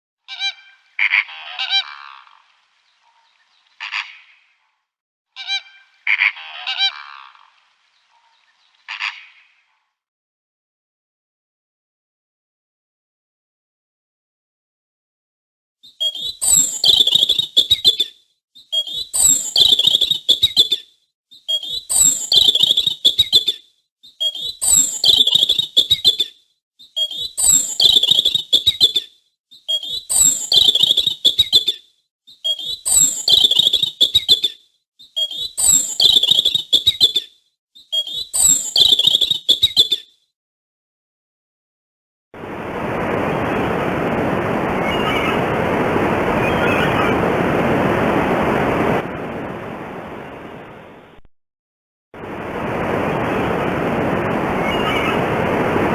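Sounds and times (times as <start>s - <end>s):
high-pitched chirping animal call: 0.3s - 2.2s, 5.4s - 7.2s, 15.9s - 40.1s
steady rushing noise: 42.4s - 51.0s, 52.2s - 55.9s.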